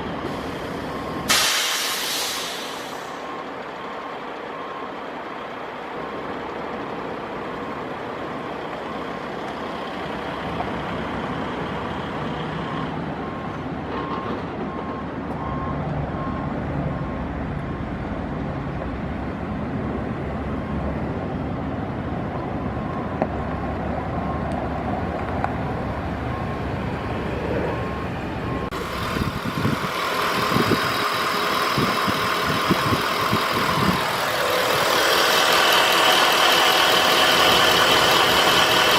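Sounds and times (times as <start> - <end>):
pickup engine idling: 28.7 - 38.9.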